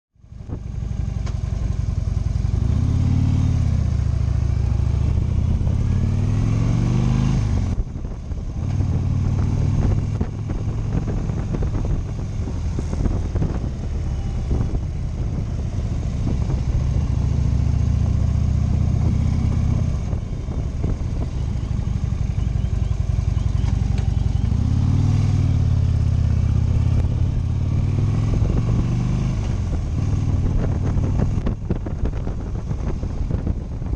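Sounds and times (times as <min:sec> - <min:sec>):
motorcycle engine accelerating: 0:00.2 - 0:33.9.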